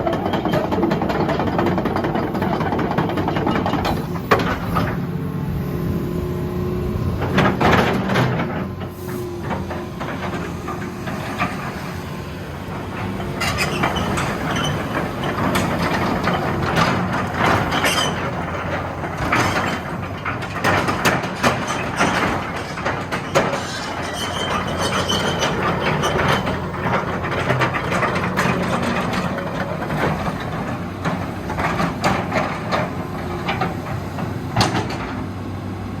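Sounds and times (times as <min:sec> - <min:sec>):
excavator diesel engine running: 0:00.0 - 0:36.0
metallic clanks and rattles: 0:12.7 - 0:35.2.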